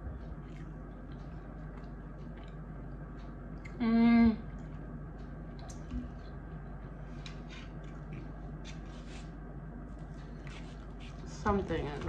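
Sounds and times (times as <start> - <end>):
room noise hum: 0.0 - 12.0
chewing food: 0.1 - 8.9.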